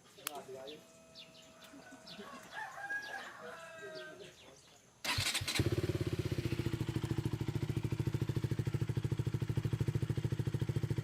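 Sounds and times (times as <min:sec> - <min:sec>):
motorcycle engine idling: 0:05.1 - 0:11.0.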